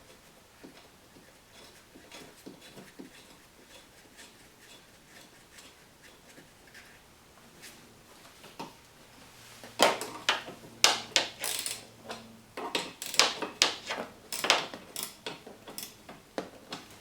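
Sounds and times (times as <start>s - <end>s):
hand tools clicking and knocking: 9.8s - 16.9s.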